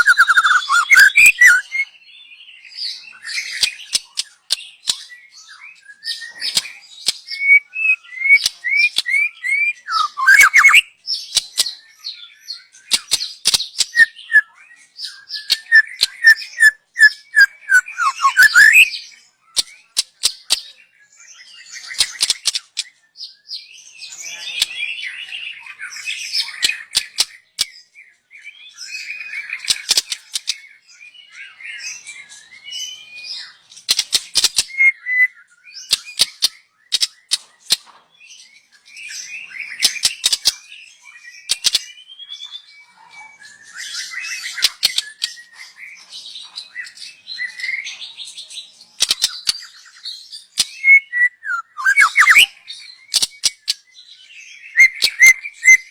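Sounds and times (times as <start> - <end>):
bird singing whistled phrases: 0.0 - 3.8, 5.0 - 11.0, 13.8 - 19.6, 34.7 - 36.7, 49.3 - 55.9.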